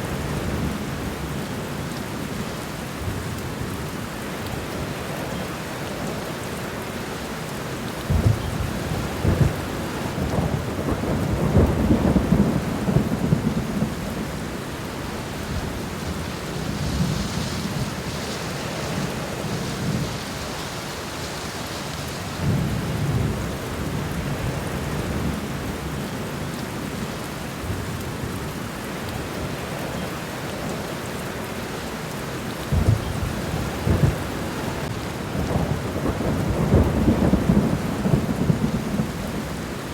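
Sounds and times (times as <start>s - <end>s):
steady rain falling: 0.0s - 39.9s
rolling thunder: 8.1s - 20.2s, 32.7s - 39.7s.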